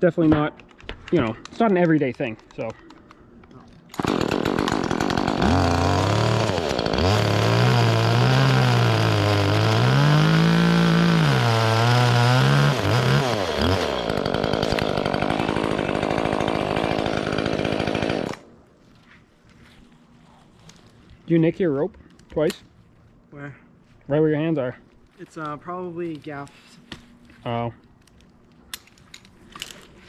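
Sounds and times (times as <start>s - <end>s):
chainsaw cutting wood: 3.9s - 18.5s.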